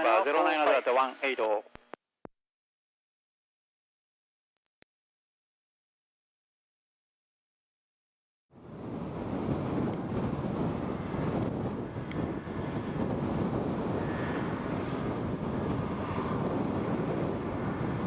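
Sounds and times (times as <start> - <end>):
jet engine rumble: 8.5 - 18.0
wind hitting microphone: 8.6 - 18.0.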